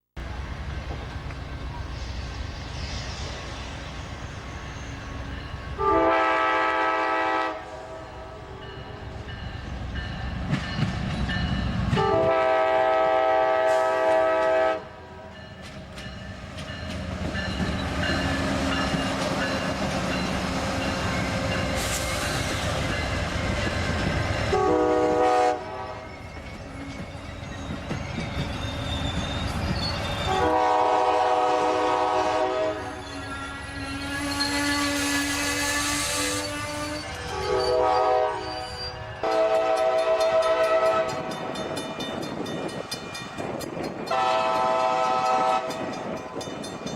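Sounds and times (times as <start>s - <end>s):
train wheels rumbling on rails: 0.2s - 46.9s
train horn blasts: 5.8s - 9.0s, 11.8s - 15.4s, 24.5s - 26.1s, 30.3s - 41.5s, 44.1s - 46.0s.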